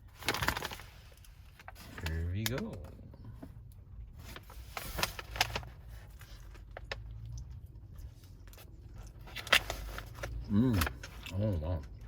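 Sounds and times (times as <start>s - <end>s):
crisp crackles: 0.0s - 2.6s, 4.2s - 11.9s
chewing sandwich: 5.9s - 12.0s.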